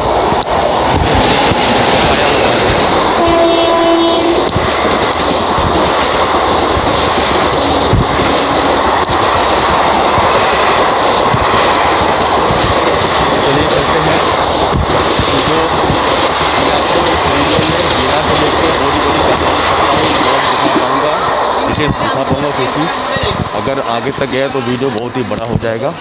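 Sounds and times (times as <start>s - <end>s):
passenger train rumbling past: 0.0s - 26.0s.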